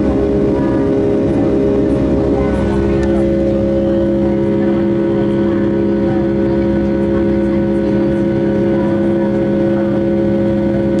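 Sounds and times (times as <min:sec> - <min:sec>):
jet engine drone in cabin: 0:00.0 - 0:11.0.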